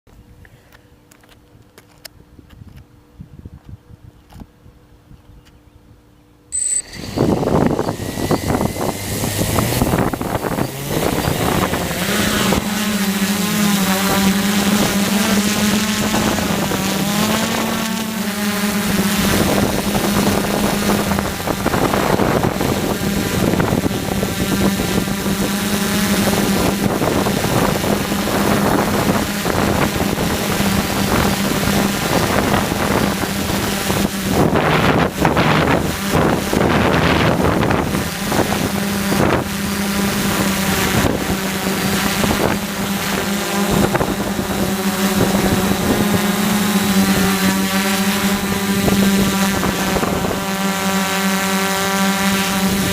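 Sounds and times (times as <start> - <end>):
wind on microphone: 2.3 - 5.4, 6.8 - 52.9
drone motors humming: 6.5 - 52.9.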